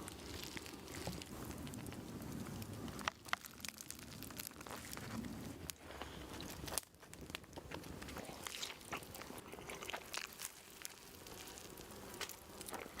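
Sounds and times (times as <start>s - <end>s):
crisp bread crunches: 0.0s - 13.0s
person chewing a sandwich: 2.9s - 13.0s.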